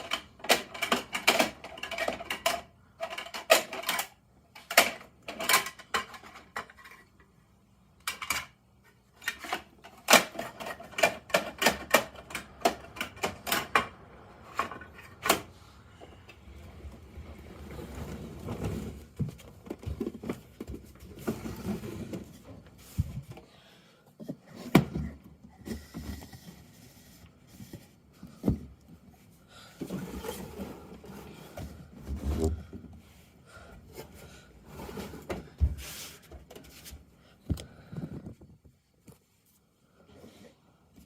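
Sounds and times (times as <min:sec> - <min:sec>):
plastic toy clicks and knocks: 0:00.0 - 0:07.0, 0:09.2 - 0:15.4.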